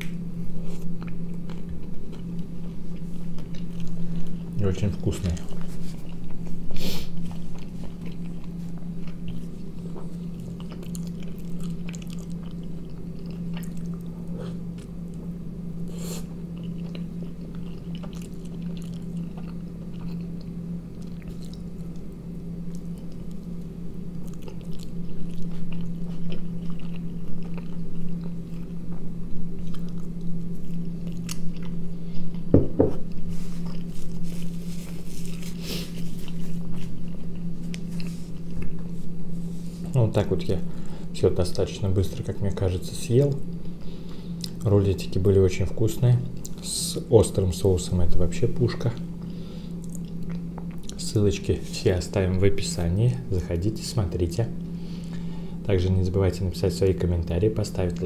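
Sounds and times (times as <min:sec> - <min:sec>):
person biting and chewing: 0:05.4 - 0:15.2, 0:15.8 - 0:28.8, 0:29.5 - 0:39.0.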